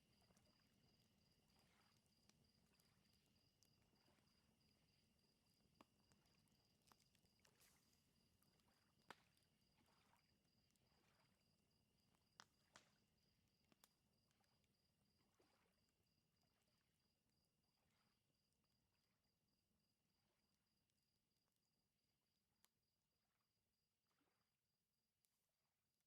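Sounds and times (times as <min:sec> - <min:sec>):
crickets chirping: 0:00.0 - 0:11.5.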